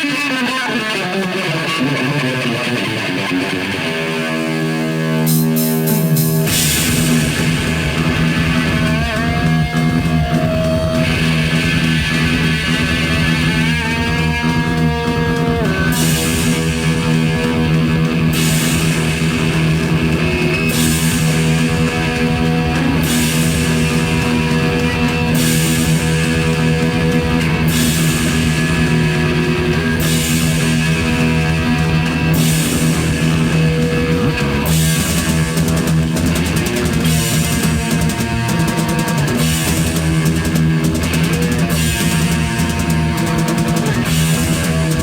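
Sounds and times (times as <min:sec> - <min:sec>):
drums: 0:00.0 - 0:45.0
electric guitar bending notes: 0:00.0 - 0:45.0
bass: 0:01.7 - 0:45.0
cymbals: 0:05.2 - 0:45.0.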